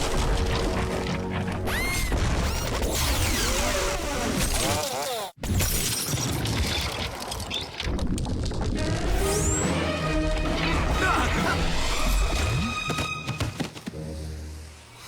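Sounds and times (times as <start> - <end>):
dramatic score music: 9.1 - 15.0.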